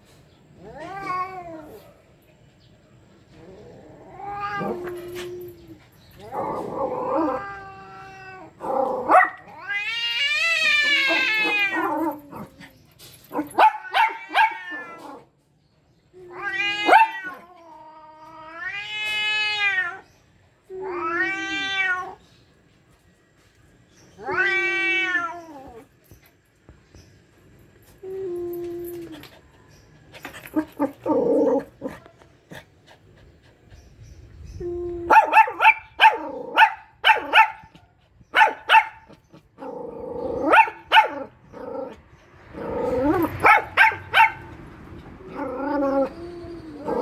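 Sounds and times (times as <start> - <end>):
cat yowling: 0.6 - 1.9, 3.6 - 5.5, 6.8 - 12.3, 13.6 - 15.3, 16.2 - 20.0, 20.7 - 22.2, 24.2 - 25.8
cat growling: 6.2 - 12.6, 39.3 - 40.6, 41.2 - 43.4.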